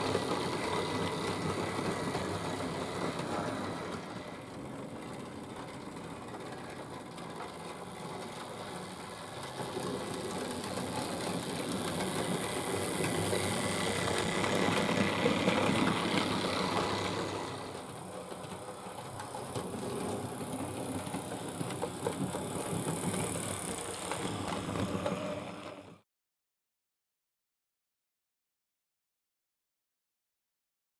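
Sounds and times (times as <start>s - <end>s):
wheels rattling over metal track: 0.0s - 26.0s
electric motor whirring: 10.0s - 17.9s.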